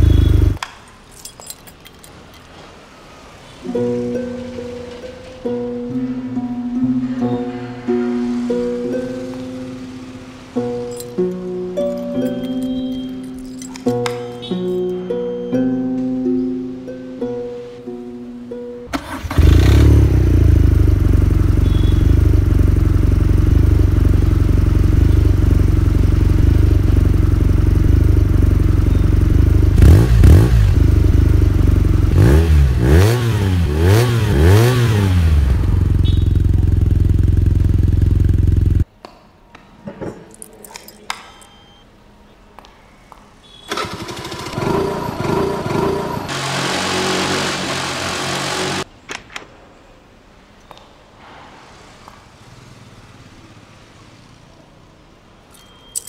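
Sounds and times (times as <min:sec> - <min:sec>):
motorcycle engine idling and revving: 0:00.0 - 0:00.6, 0:18.9 - 0:38.9, 0:43.7 - 0:48.9.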